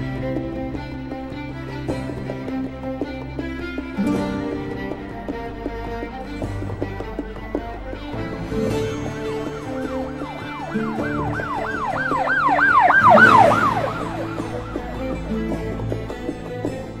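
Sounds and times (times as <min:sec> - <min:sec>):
background music with sustained chords: 0:00.0 - 0:17.0
emergency vehicle siren yelping: 0:09.8 - 0:15.3.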